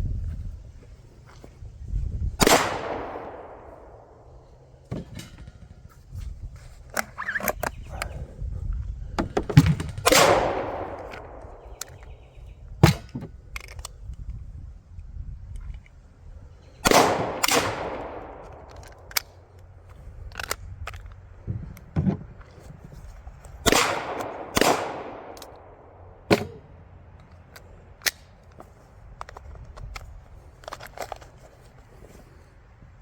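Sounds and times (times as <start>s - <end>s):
loud gunshots with echo: 2.4s - 4.1s, 10.0s - 11.4s, 23.7s - 26.5s
sharp cracks: 2.4s - 4.3s, 9.8s - 12.1s, 16.8s - 19.6s, 23.6s - 26.7s.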